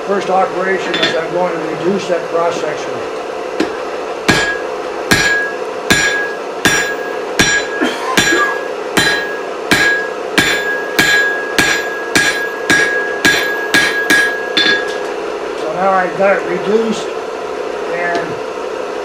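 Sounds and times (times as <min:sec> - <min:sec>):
steady hum: 0:00.0 - 0:19.0
hammer ringing on anvil: 0:00.9 - 0:01.2, 0:04.3 - 0:15.1.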